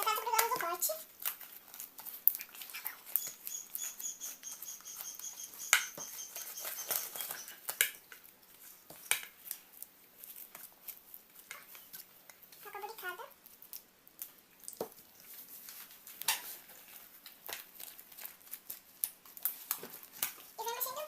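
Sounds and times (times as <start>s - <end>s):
spoon stirring slime: 0.0s - 13.9s.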